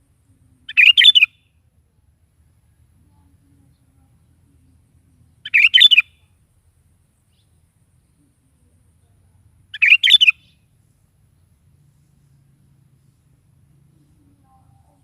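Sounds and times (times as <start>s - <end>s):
bird singing short phrases: 0.6s - 1.5s, 5.2s - 6.4s, 9.7s - 10.7s.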